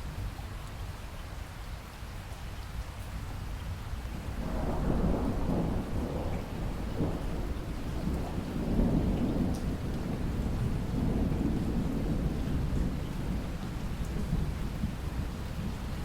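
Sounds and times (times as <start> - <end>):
steady rainfall: 0.0 - 16.0
rolling thunder: 4.2 - 16.0.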